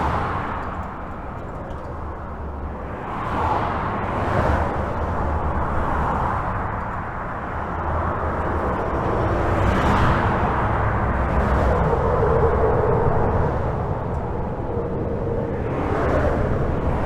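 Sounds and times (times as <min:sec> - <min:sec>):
highway traffic rumble: 0:00.0 - 0:17.0
passing vehicle tyre noise: 0:01.9 - 0:17.0.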